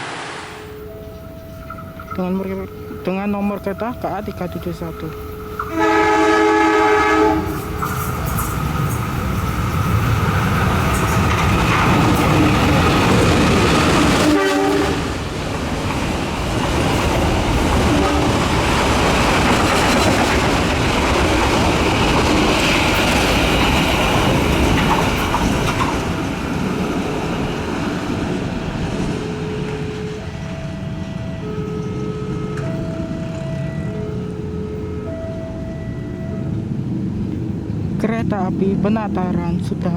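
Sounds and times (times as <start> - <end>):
train wheels rumbling on rails: 0.0 - 39.9
train horn: 5.6 - 8.5, 14.1 - 15.2, 17.8 - 18.6.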